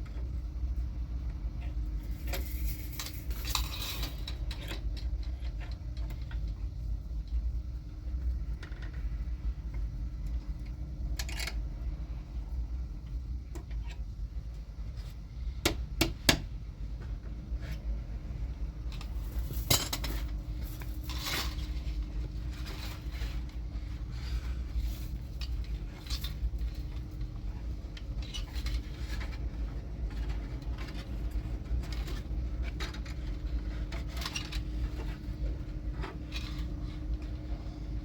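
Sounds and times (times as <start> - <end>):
faint steady hum: 0.0 - 38.0
objects clinking and knocking: 19.0 - 21.8.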